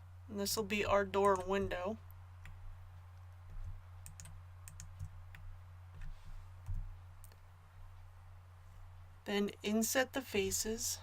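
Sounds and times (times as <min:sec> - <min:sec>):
low electrical hum: 0:00.0 - 0:11.0
computer mouse clicking: 0:01.2 - 0:01.7, 0:03.5 - 0:07.4.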